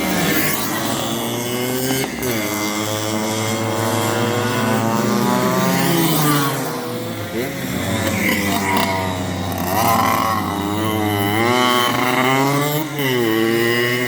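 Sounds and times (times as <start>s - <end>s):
go-kart engine: 0.0s - 14.0s.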